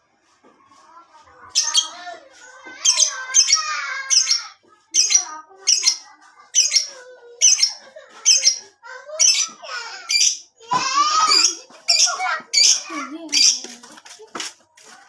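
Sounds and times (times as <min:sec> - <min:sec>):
lovebird chirping and twittering: 0:01.5 - 0:02.0, 0:02.9 - 0:10.5, 0:11.3 - 0:13.7.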